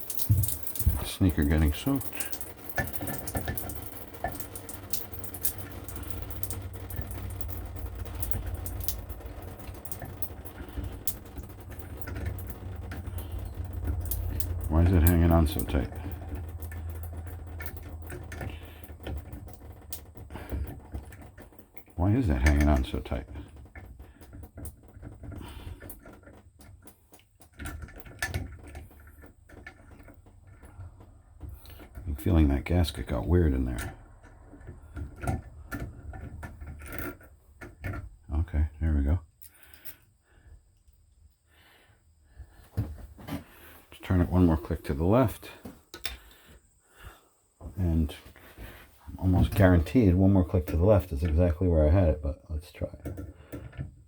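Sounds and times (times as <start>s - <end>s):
clicks and knocks of parts handled: 0.0s - 1.1s, 45.6s - 46.4s
water dripping in shower: 0.0s - 37.9s
small clicks and knocks: 0.0s - 38.3s, 45.1s - 51.7s, 52.8s - 54.0s
low rumble: 3.5s - 20.3s.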